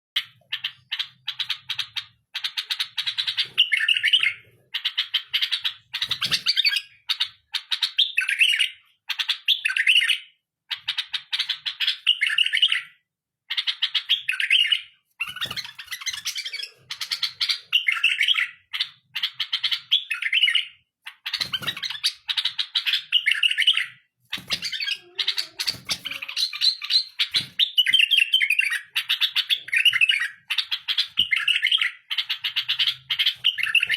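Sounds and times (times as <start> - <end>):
bulbul singing: 13.8 - 33.9.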